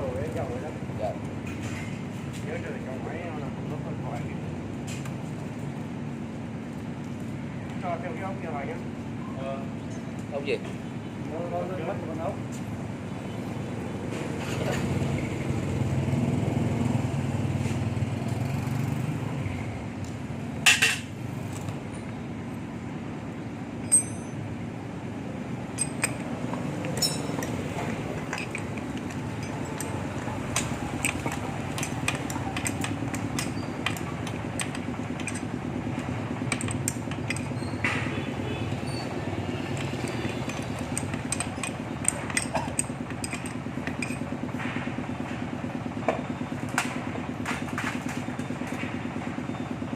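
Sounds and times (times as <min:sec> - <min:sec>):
steady mechanical hum: 0:00.0 - 0:49.9
metal tools clinking: 0:23.8 - 0:24.5, 0:25.7 - 0:38.1, 0:38.8 - 0:44.4.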